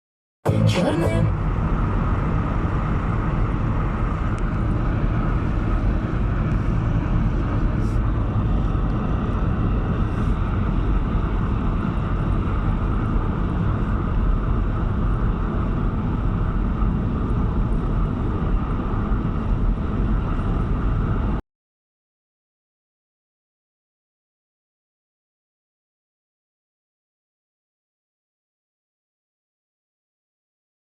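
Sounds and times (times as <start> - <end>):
car road and engine rumble: 0.5 - 21.4.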